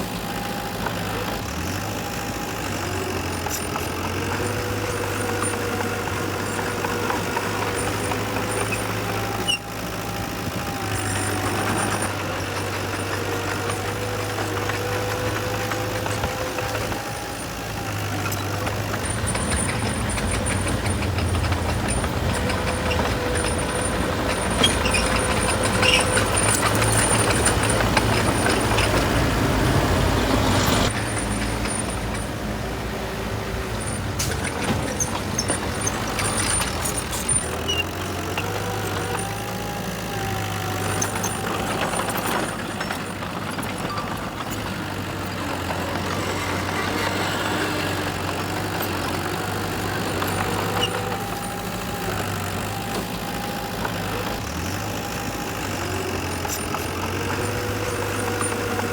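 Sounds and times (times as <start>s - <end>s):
heavy diesel engine running: 0.0s - 58.9s.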